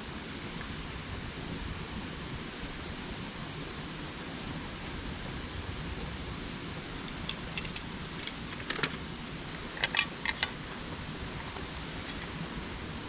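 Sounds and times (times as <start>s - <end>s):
light sharp clinks: 7.0s - 9.0s.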